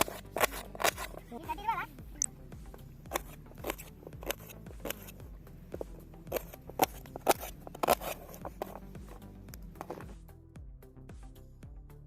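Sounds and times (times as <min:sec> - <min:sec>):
sharp snips or clicks: 0:00.0 - 0:01.2, 0:02.2 - 0:10.1.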